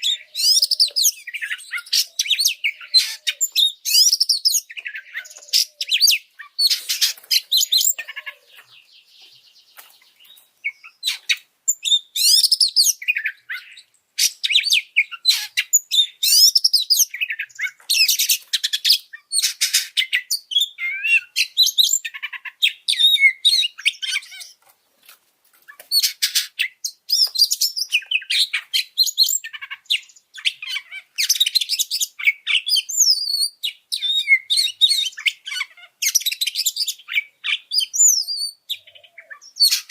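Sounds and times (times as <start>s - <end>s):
bird singing whistles and chirps: 0.0s - 24.6s, 25.9s - 39.9s.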